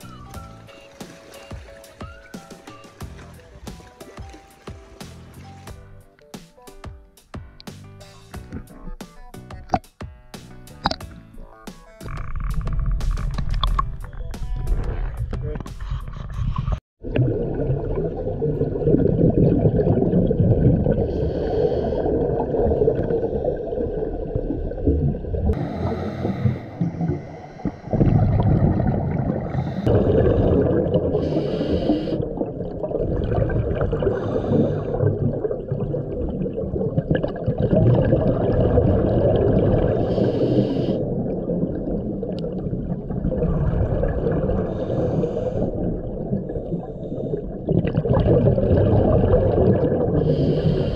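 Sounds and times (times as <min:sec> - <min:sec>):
gurgling exhaled bubbles: 0:12.0 - 0:50.9
regulator inhale hiss: 0:21.0 - 0:22.2, 0:25.6 - 0:28.0, 0:29.5 - 0:30.0, 0:31.2 - 0:32.3, 0:34.1 - 0:35.1, 0:39.9 - 0:41.1, 0:44.6 - 0:45.8, 0:50.2 - 0:50.9.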